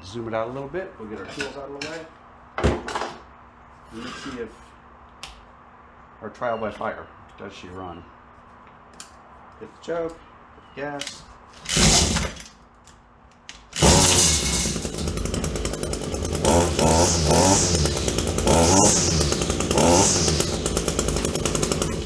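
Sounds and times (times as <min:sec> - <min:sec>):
string trimmer engine revving: 0:11.7 - 0:12.4, 0:13.8 - 0:22.0.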